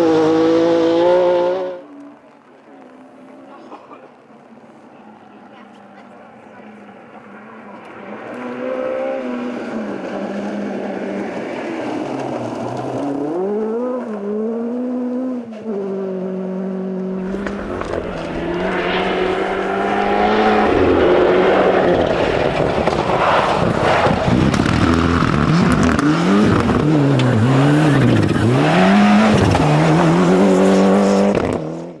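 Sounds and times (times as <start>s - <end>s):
rally car engine revving: 17.2s - 32.0s.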